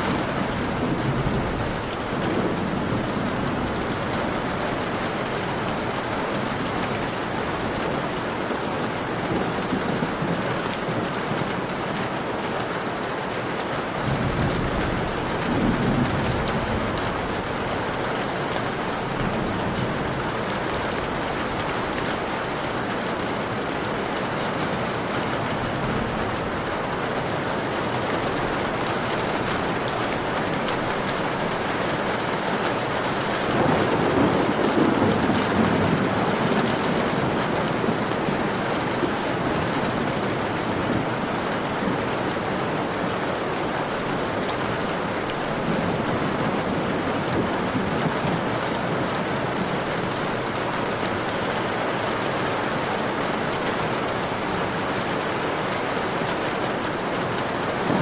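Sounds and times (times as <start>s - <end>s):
thunder rumbling: 0.0s - 11.7s, 13.8s - 52.8s
rain on a window: 0.0s - 58.0s.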